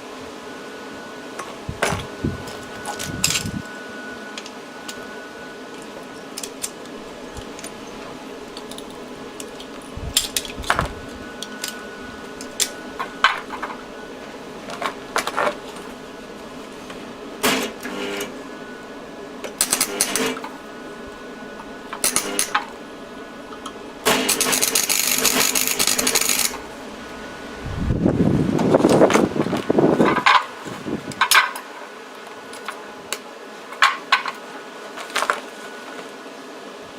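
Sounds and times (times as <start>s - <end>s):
metal parts clinking and tapping: 8.5s - 10.9s, 24.3s - 26.6s.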